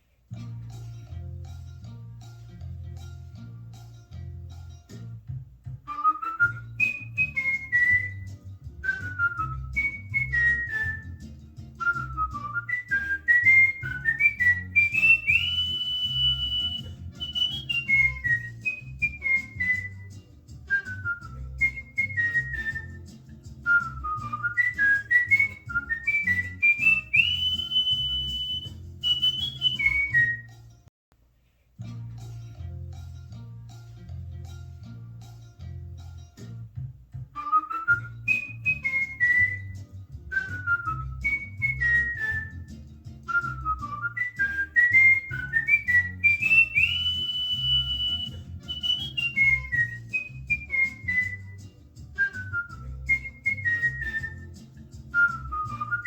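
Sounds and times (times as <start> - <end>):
music with a beat: 0.0 - 30.8, 31.8 - 56.0
cockatiel whistling a tune: 5.8 - 30.6, 37.3 - 56.0.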